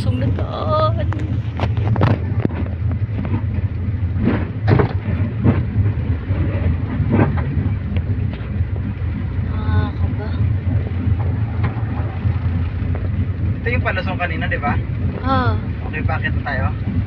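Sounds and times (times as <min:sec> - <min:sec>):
knocks and rattles: 0:00.0 - 0:08.6, 0:09.9 - 0:13.7
road and tyre rumble: 0:00.0 - 0:17.0.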